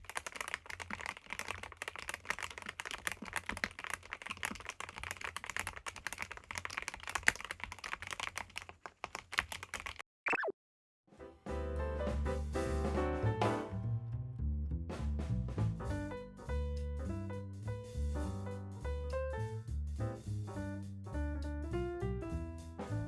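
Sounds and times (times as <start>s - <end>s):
fast typing on mechanical keyboard: 0.0s - 10.0s.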